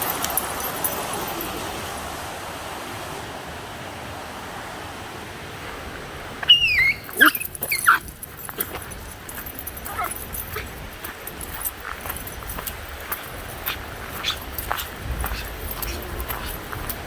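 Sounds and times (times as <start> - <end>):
dog whining: 6.4 - 8.3, 9.8 - 10.8.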